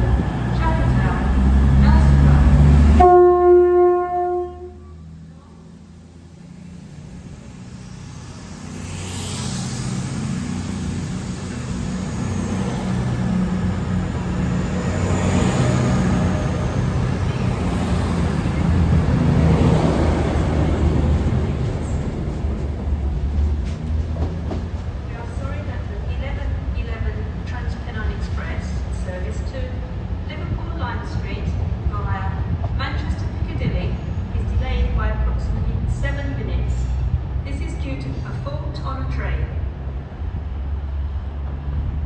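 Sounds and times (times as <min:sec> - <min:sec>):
train rumbling: 0:00.0 - 0:42.0
train horn: 0:03.0 - 0:05.0.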